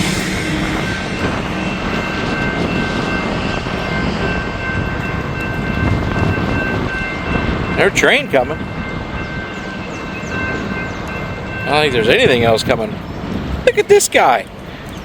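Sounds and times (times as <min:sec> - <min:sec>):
high-pitched tone: 0:00.0 - 0:06.6
rail equipment moving along track: 0:00.0 - 0:15.0.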